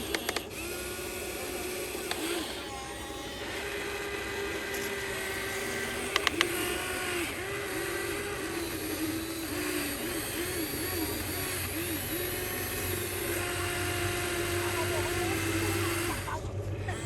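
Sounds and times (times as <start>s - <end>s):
sharp clicks: 0.0s - 13.5s
electric motors whining: 0.0s - 17.0s.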